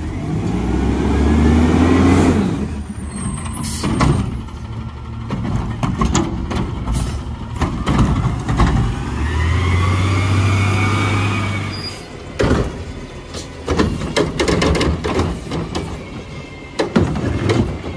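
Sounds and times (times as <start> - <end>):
truck engine with rising whine: 0.0 - 17.9
metal knocks and clanks: 5.2 - 9.0, 12.4 - 17.9.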